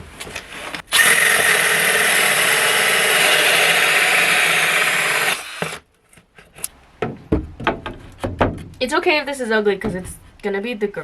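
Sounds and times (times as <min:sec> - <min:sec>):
power drill running: 0:00.9 - 0:05.8.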